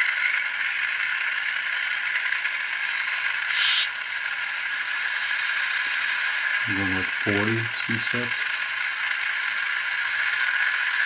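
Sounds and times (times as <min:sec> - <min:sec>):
diesel engine sound from small speaker: 0:00.0 - 0:11.0
burst of hiss: 0:03.5 - 0:03.9.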